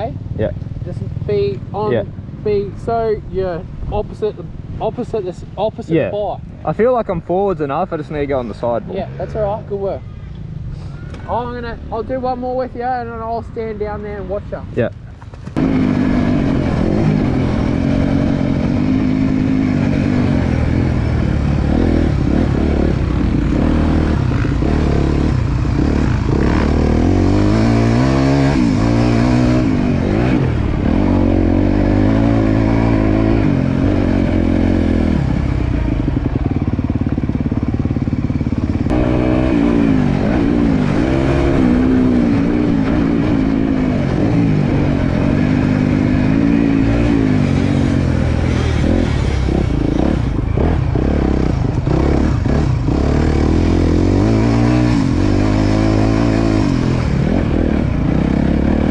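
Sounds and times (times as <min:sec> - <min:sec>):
motocross bike engine revving: 0:15.6 - 0:58.9.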